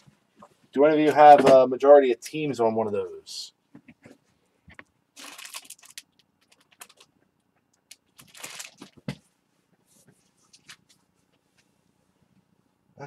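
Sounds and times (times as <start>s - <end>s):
rustling of small objects: 5.1s - 9.2s.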